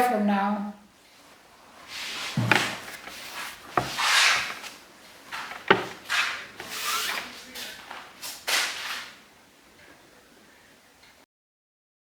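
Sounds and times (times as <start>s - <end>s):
rustling and rubbing: 1.1s - 9.7s
sharp knocks: 2.3s - 6.8s.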